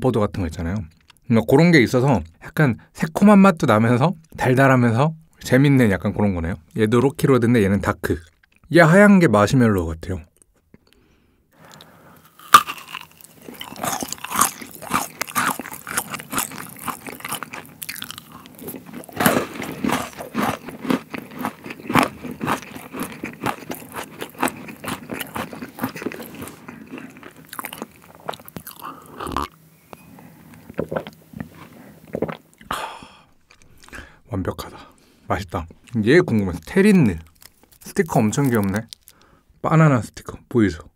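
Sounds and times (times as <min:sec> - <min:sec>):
chocolate bar crunching and chewing: 0:11.6 - 0:29.6, 0:35.4 - 0:39.4.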